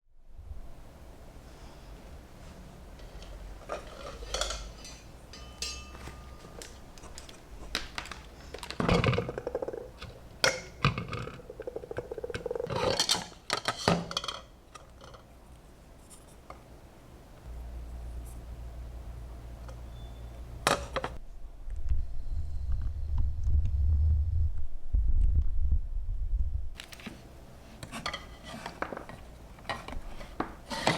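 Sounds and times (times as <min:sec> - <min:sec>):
tools clicking and clinking: 0:03.2 - 0:07.4.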